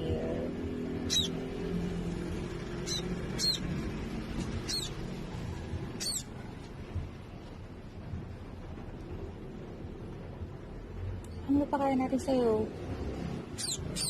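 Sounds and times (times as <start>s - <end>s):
baby bird peeping: 0.9s - 5.2s, 5.9s - 6.4s, 13.5s - 14.0s.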